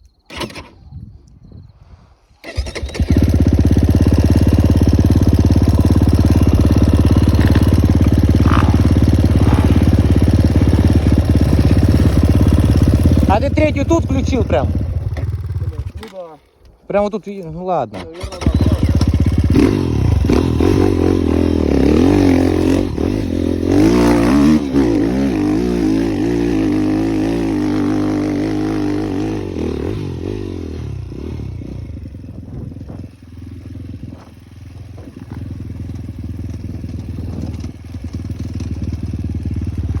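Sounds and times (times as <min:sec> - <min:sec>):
motorcycle engine revving: 0:02.4 - 0:16.1, 0:18.0 - 0:40.0.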